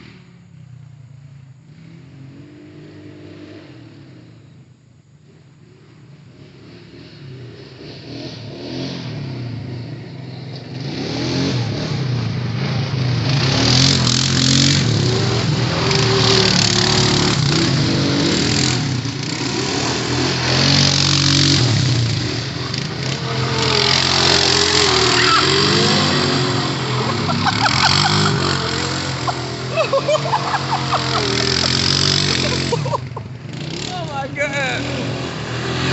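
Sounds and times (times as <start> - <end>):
atv engine revving: 5.3 - 35.9.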